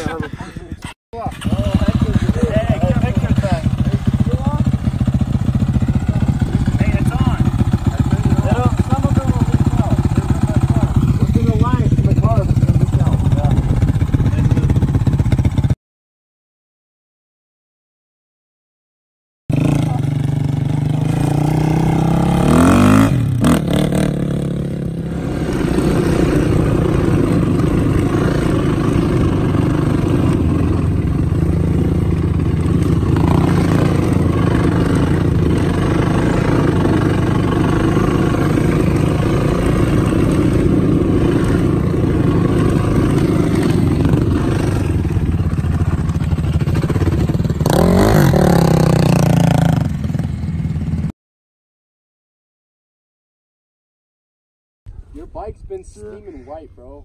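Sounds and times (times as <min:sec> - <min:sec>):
vehicle engine accelerating: 0:19.5 - 0:51.1.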